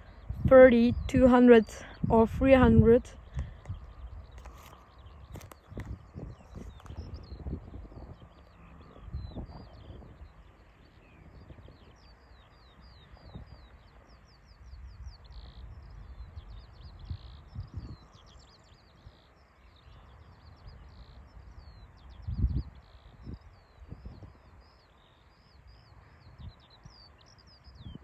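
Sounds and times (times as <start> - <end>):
songbird chirping and trilling: 0.0 - 28.0
wind rumble on microphone: 0.0 - 28.0.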